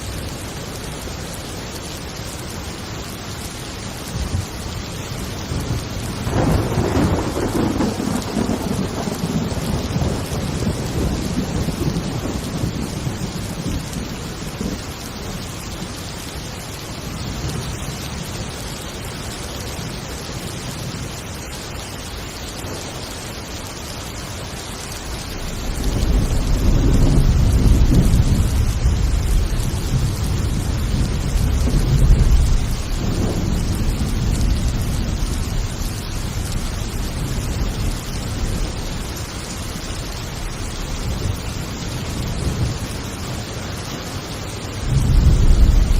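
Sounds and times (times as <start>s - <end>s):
heavy rain: 0.0s - 45.9s
thunder rolling: 5.5s - 14.8s, 25.4s - 38.9s, 44.8s - 45.9s.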